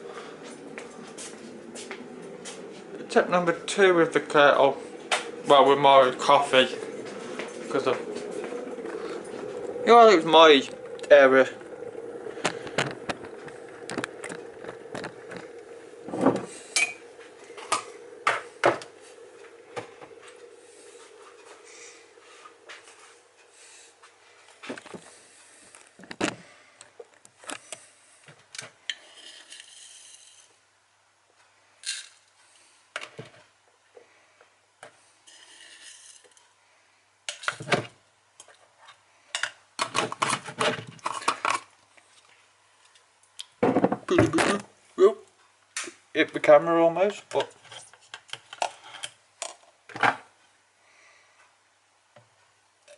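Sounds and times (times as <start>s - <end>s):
steady hum: 0.0s - 26.8s
kitchenware clinking and scraping: 39.4s - 41.7s.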